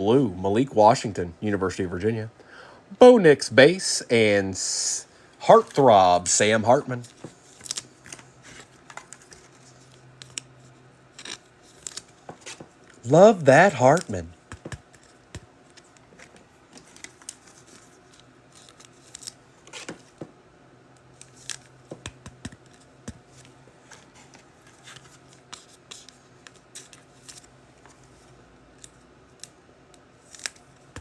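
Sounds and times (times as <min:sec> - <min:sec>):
card wrappers crinkling: 0:06.9 - 0:20.1, 0:21.2 - 0:29.5, 0:30.2 - 0:31.0.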